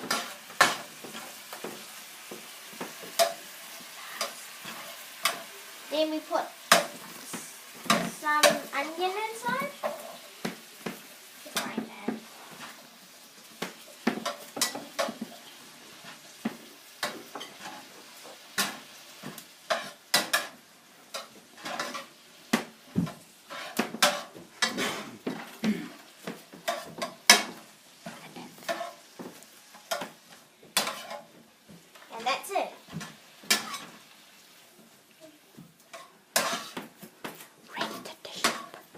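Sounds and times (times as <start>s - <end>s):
faint sizzle: 0.0s - 38.9s
utensil scraping a pan: 19.7s - 22.2s, 23.1s - 30.2s, 30.8s - 31.3s, 33.0s - 34.0s, 35.9s - 37.0s.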